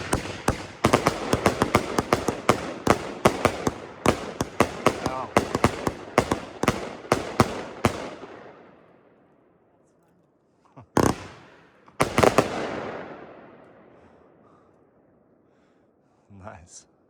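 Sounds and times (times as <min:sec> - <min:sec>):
firework bangs with rolling echo: 0:00.0 - 0:08.8, 0:11.0 - 0:14.0.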